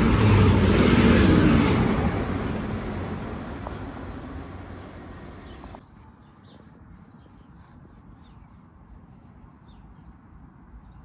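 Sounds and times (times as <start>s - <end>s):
diesel train rumbling past: 0.0s - 5.8s.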